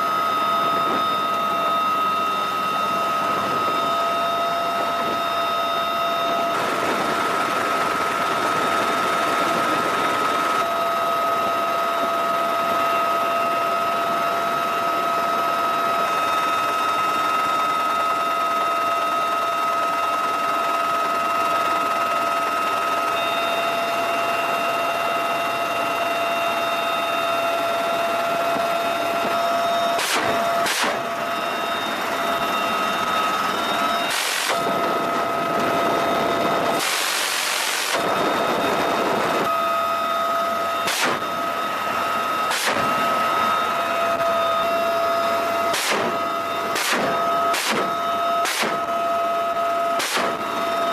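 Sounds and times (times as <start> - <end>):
helicopter engine and rotor whine: 0.0 - 50.9
short sharp bursts of noise: 34.1 - 34.6, 46.8 - 48.8, 50.0 - 50.4.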